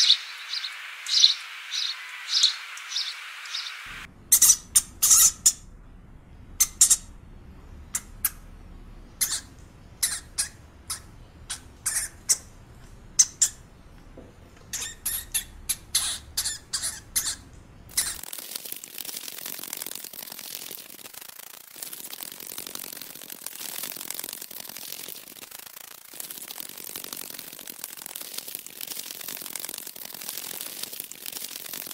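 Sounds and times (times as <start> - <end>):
high hiss with fine crackling: 0.0 - 4.1, 17.9 - 31.9.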